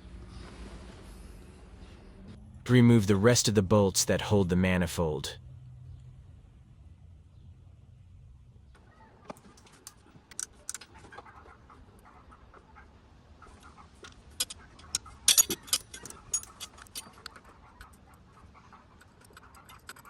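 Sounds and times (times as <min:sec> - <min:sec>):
wrench clinking on metal: 0:15.3 - 0:17.1.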